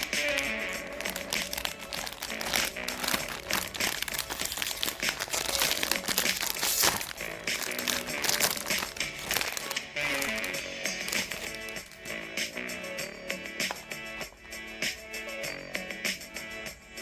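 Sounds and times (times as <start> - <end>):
plastic wrappers crinkling: 0.0 - 12.2.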